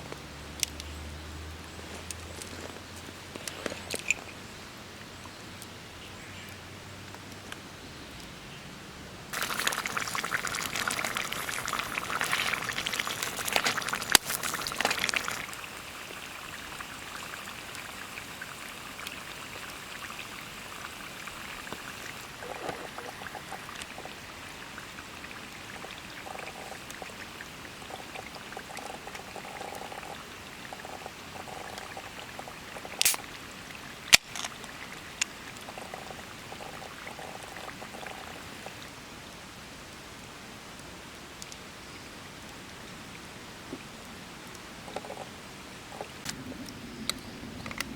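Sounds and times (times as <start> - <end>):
liquid pouring: 9.3 - 38.9
steady hiss: 9.3 - 47.9.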